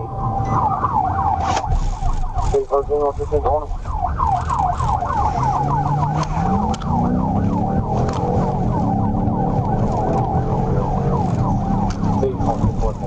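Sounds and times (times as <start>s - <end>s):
police siren yelping: 0.0s - 13.0s
car engine accelerating: 4.2s - 13.0s.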